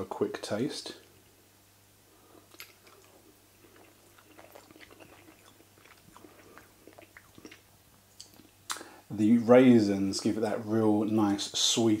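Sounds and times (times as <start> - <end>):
man chewing food: 2.1 - 8.9.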